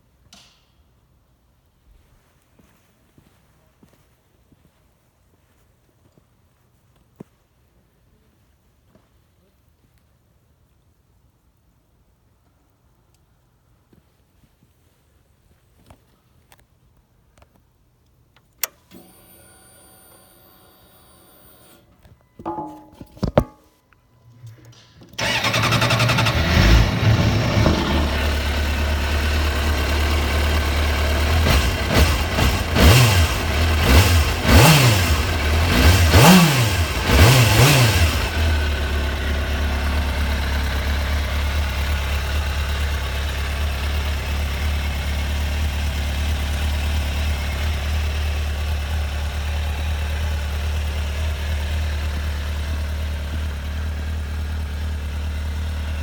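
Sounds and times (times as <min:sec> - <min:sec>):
motorcycle engine idling and revving: 0:25.2 - 0:56.0.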